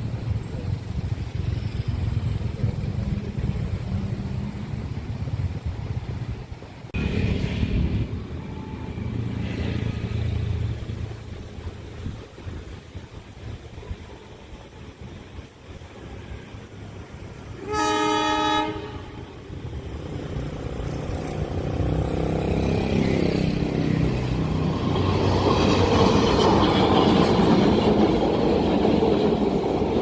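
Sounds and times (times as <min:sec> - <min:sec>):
train wheels rumbling on rails: 0:00.0 - 0:30.0
locomotive horn blast: 0:17.6 - 0:19.5.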